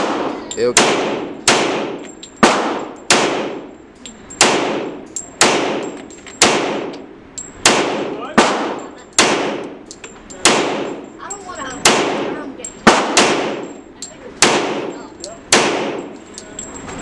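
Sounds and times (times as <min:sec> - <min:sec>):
faint distant gunshots: 0:00.0 - 0:03.7, 0:04.4 - 0:07.0, 0:07.6 - 0:09.8, 0:10.4 - 0:11.0, 0:11.8 - 0:13.8, 0:15.5 - 0:16.2
gunshots with ringing decay: 0:00.0 - 0:03.8, 0:04.4 - 0:13.8, 0:14.4 - 0:16.2.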